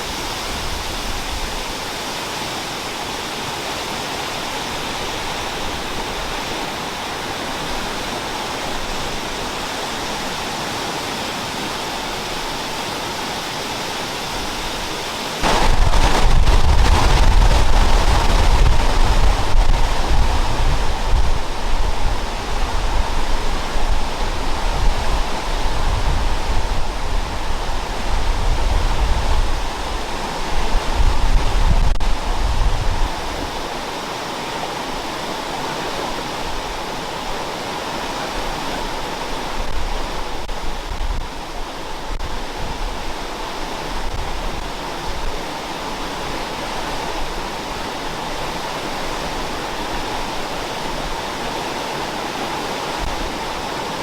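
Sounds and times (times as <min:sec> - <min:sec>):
waterfall pouring onto rock: 0:15.4 - 0:20.9.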